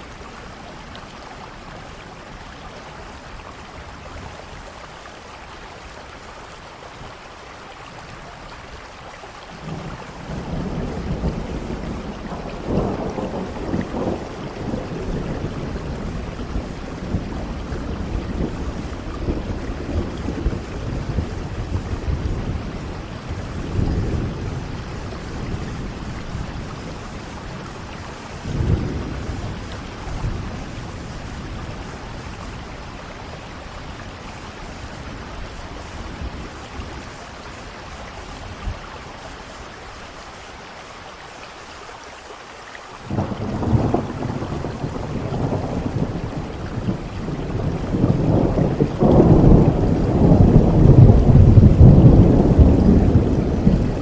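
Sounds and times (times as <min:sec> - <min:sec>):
steady rain: 0:00.0 - 0:54.0
rolling thunder: 0:09.6 - 0:38.8, 0:43.0 - 0:54.0.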